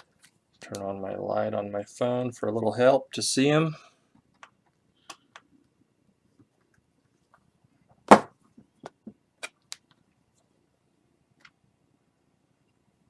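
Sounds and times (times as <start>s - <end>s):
sharp knock: 8.1s - 8.4s.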